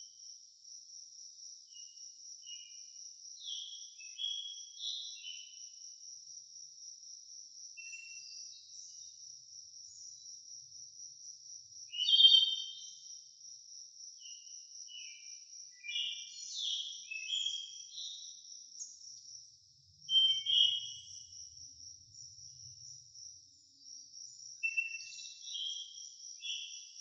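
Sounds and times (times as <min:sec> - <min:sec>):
crickets trilling: 0:00.0 - 0:27.0
bird chirps: 0:03.4 - 0:05.6, 0:07.8 - 0:09.1, 0:11.9 - 0:13.1, 0:14.2 - 0:19.4, 0:20.0 - 0:27.0.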